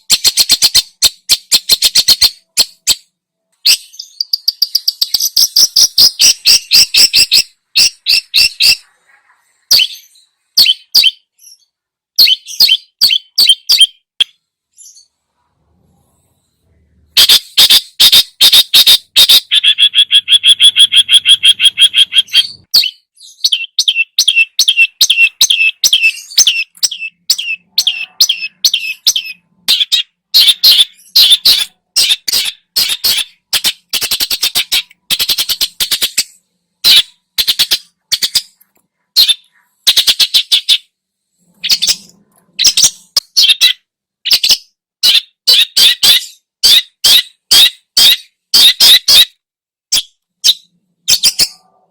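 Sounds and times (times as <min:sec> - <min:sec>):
bird singing harsh repeated notes: 0:00.0 - 0:15.5, 0:16.7 - 0:51.9.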